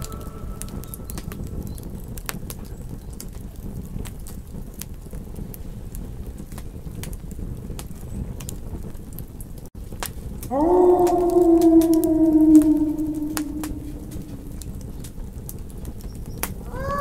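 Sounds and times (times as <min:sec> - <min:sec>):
wolf howl: 0:00.0 - 0:01.4, 0:10.5 - 0:14.8, 0:16.7 - 0:17.0
campfire crackling: 0:00.0 - 0:17.0.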